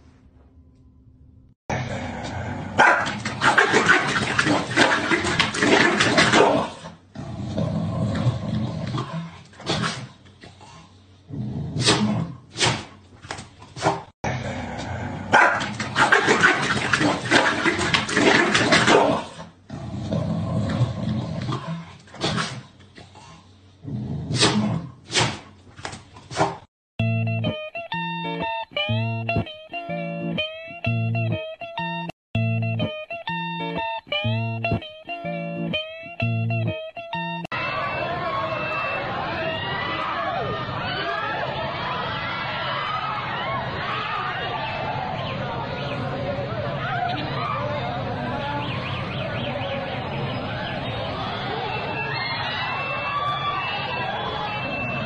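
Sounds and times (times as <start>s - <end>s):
dogs growling and barking: 1.7s - 10.7s, 11.3s - 13.0s, 13.8s - 25.6s
guitar music: 27.0s - 37.5s.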